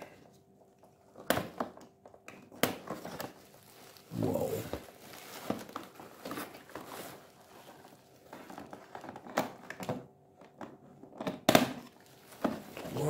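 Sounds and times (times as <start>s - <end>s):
cardboard and plastic crinkling: 2.6s - 13.0s.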